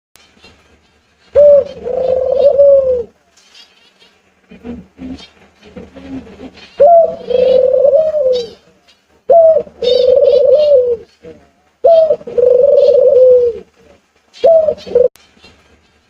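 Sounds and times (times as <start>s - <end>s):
sea birds cooing: 1.4s - 3.1s, 4.5s - 8.6s, 9.3s - 13.7s, 14.4s - 15.2s.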